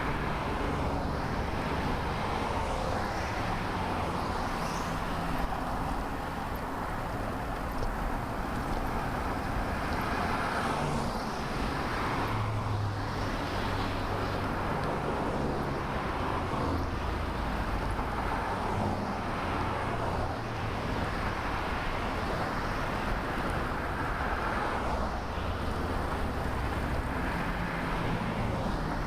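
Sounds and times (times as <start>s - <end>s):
vehicles passing: 0.0s - 29.0s.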